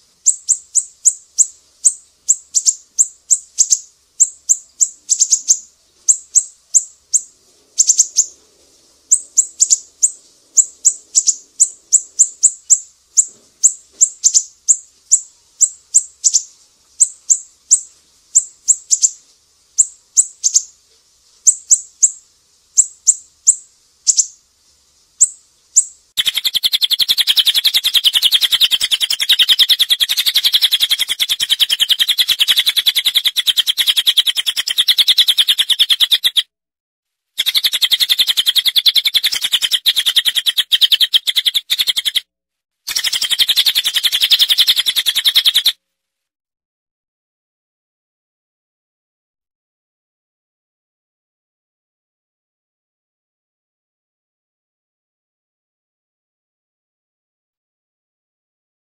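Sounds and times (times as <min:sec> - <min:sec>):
bird buzzy trill: 0:00.0 - 0:08.4, 0:09.1 - 0:19.2, 0:19.8 - 0:20.7, 0:22.8 - 0:24.4, 0:25.2 - 0:36.5, 0:37.4 - 0:42.3, 0:42.9 - 0:45.8
songbird sharp chirps: 0:00.2 - 0:08.4, 0:09.1 - 0:19.2, 0:19.8 - 0:20.8, 0:21.5 - 0:22.2, 0:22.8 - 0:24.4, 0:25.2 - 0:36.5, 0:37.4 - 0:42.3, 0:42.9 - 0:45.8.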